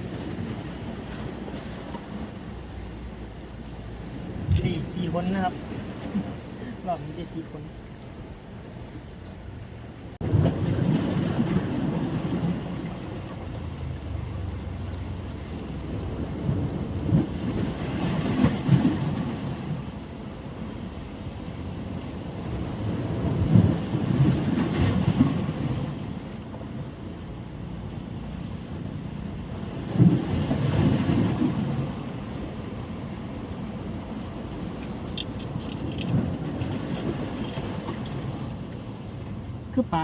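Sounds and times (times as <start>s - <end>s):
surf washing on beach: 0.0s - 40.0s
wind buffeting microphone: 10.2s - 27.0s, 28.7s - 39.6s.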